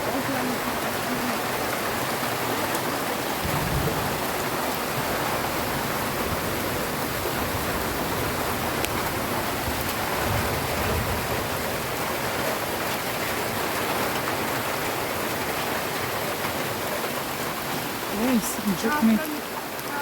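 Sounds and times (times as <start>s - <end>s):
rain falling: 0.0s - 20.0s
low rumbles: 3.2s - 11.7s.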